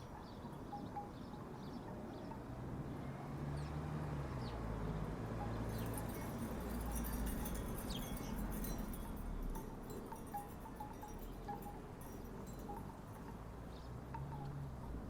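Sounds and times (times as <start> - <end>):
distant engine hum: 0.0 - 15.0
wooden wind chimes knocking: 5.4 - 15.0.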